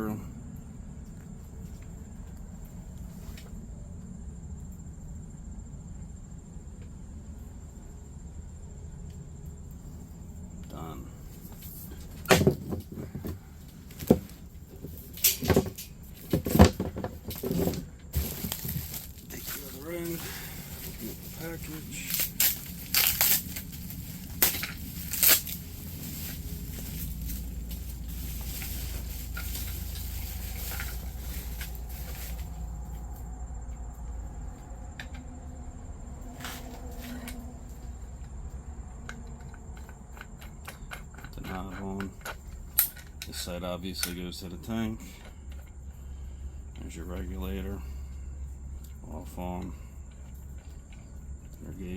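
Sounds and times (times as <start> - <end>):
low steady rumble: 0.0 - 51.9
knocks and clunks of parts: 11.5 - 23.6, 39.0 - 43.4
plastic packaging rustling: 11.6 - 32.9.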